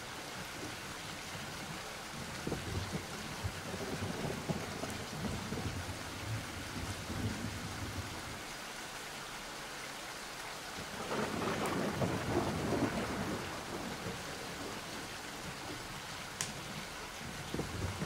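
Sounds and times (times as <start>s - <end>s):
steady rain: 0.0s - 18.0s
thunder rumbling: 2.4s - 8.1s, 11.0s - 15.0s, 16.6s - 18.0s.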